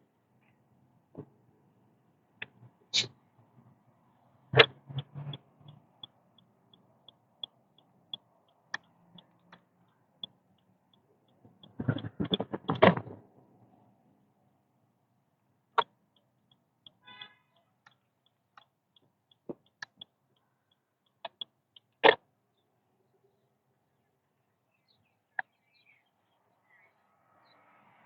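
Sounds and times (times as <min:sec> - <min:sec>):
turn signal ticking: 0:04.4 - 0:12.8, 0:15.6 - 0:22.2.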